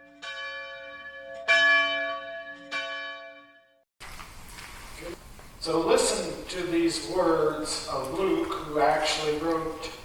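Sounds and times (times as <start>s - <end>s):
bell tolling: 0.0s - 3.6s
faint room noise: 4.0s - 10.0s.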